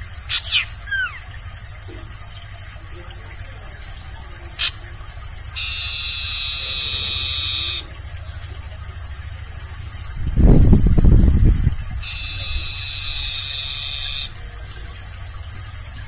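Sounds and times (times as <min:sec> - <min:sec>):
low steady hum: 0:00.0 - 0:16.0
owl screeching: 0:05.6 - 0:07.9, 0:12.0 - 0:14.3.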